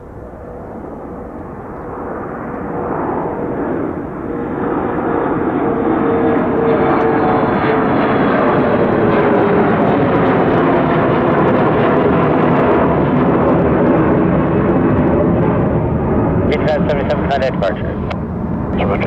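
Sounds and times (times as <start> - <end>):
faint whine: 0.0 - 9.5
jet engine roar: 0.0 - 19.0.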